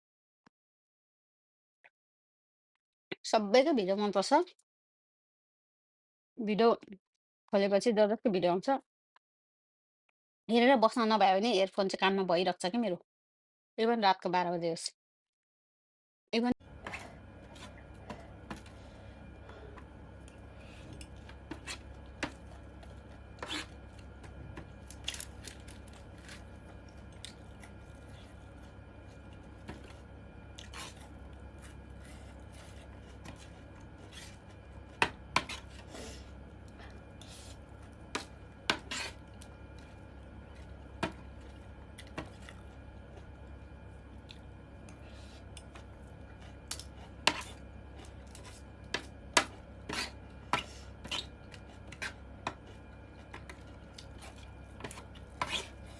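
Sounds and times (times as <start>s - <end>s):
steady low hum: 16.6s - 55.9s.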